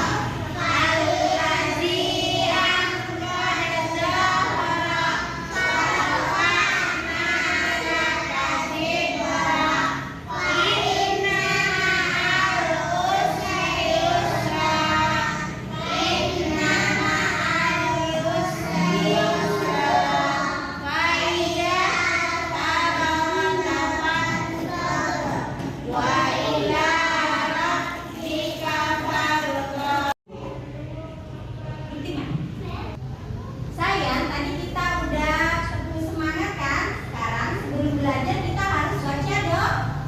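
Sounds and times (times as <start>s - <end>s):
child singing: 0.0s - 30.2s.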